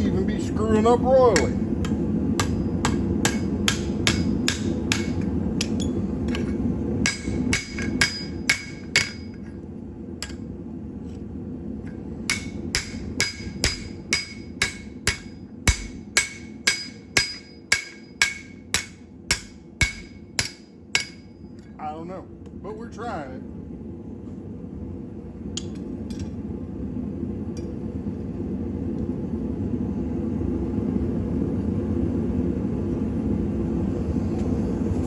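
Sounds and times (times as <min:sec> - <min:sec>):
low steady rumble: 0:00.0 - 0:35.0
hammer striking metal on anvil: 0:01.3 - 0:09.5, 0:10.2 - 0:10.4, 0:11.9 - 0:21.3.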